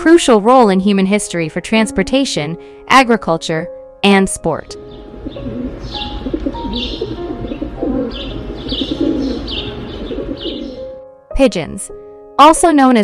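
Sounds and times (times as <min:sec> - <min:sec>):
high bird chirps: 0:04.8 - 0:11.0
pigeons cooing: 0:05.0 - 0:11.0.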